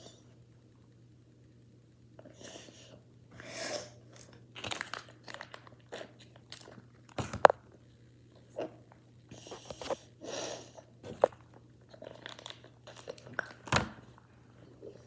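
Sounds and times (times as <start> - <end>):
crunching and chewing: 4.1 - 10.1, 11.0 - 15.0.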